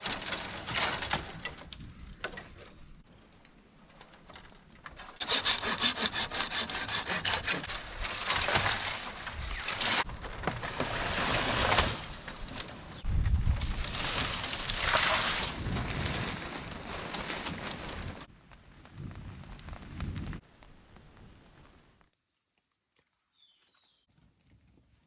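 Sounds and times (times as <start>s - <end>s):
hand saw cutting wood: 5.1s - 10.0s.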